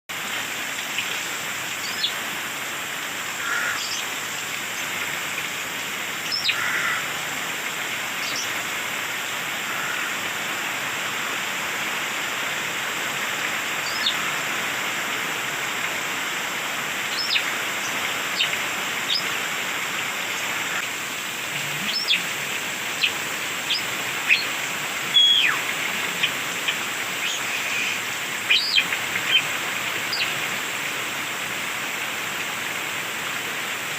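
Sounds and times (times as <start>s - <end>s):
steady hiss: 0.1s - 33.9s
bird whistles and squeaks: 25.1s - 25.6s.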